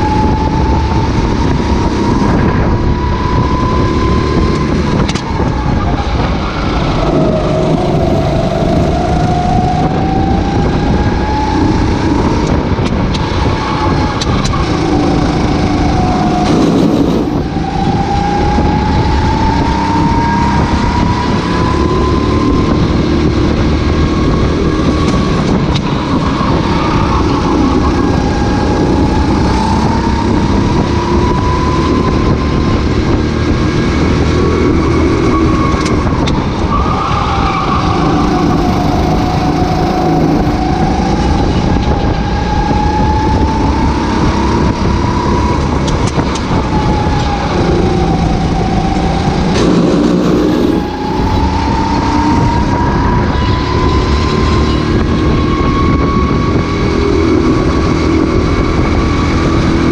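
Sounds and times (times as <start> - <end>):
racing kart engine revving: 0.0 - 59.9.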